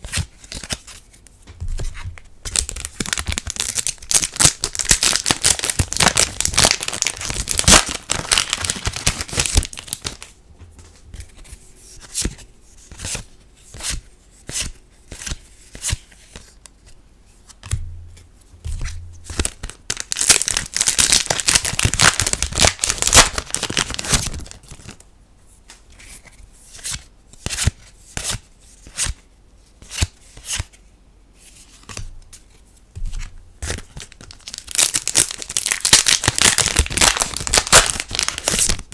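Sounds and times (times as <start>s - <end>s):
foil packs crinkling and tearing: 2.5s - 10.3s, 19.3s - 25.0s, 33.7s - 38.9s.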